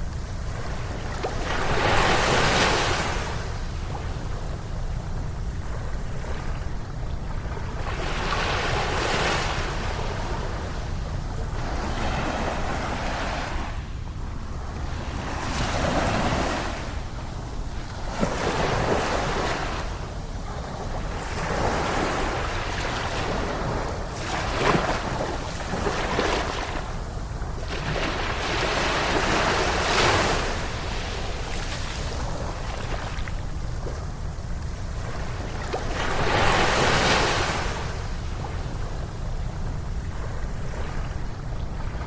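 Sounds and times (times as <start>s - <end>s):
steady low rumble: 0.0s - 29.8s, 30.4s - 36.8s
ocean surf breaking on beach: 7.6s - 34.1s, 34.9s - 42.0s.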